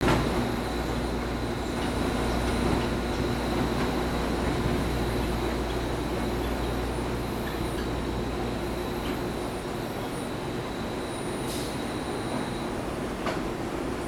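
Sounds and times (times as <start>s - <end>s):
train motors humming: 0.0s - 10.2s.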